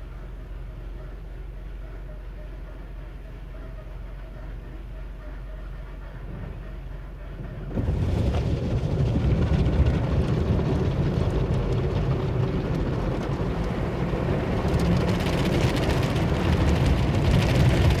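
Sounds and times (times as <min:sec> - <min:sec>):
car wash machinery running: 0:00.0 - 0:18.0
car wash water spray rushing: 0:07.7 - 0:18.0.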